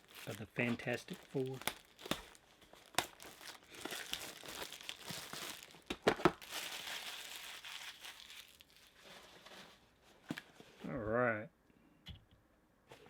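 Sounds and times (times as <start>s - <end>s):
packaging crinkling and tearing: 0.0s - 9.3s.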